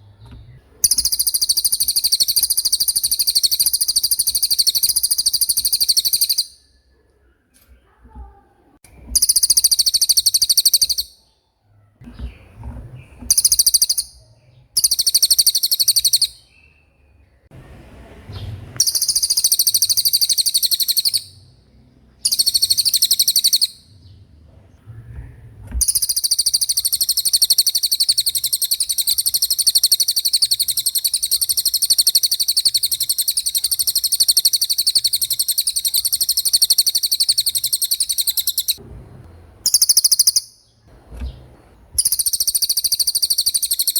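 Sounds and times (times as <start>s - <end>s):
songbird singing rapid trills: 0.4s - 6.8s, 9.1s - 11.4s, 13.3s - 17.5s, 18.8s - 21.6s, 22.2s - 24.2s, 25.8s - 38.8s, 39.7s - 40.8s, 42.0s - 43.9s.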